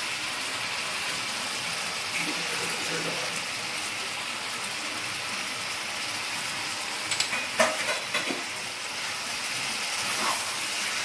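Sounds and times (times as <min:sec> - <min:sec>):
chicken sizzling in oil: 0:00.0 - 0:11.0
spoon clinking and scraping pan: 0:07.1 - 0:08.5.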